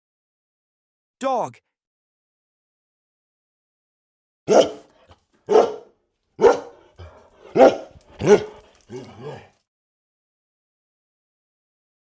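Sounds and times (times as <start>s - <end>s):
dog barking: 4.5s - 9.5s.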